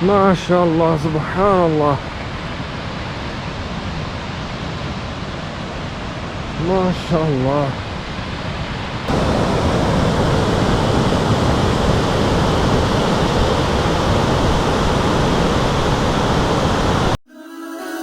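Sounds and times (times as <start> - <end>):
waterfall rushing: 9.1 - 17.2
music: 17.3 - 18.0.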